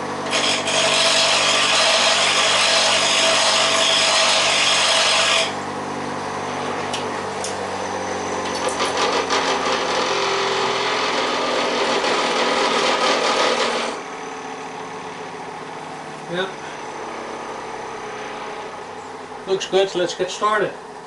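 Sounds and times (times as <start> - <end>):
tool scraping on grinder: 0.0 - 5.7, 8.4 - 14.0
grinder motor hum: 0.0 - 19.3
grinder sharpening tool: 0.2 - 5.6.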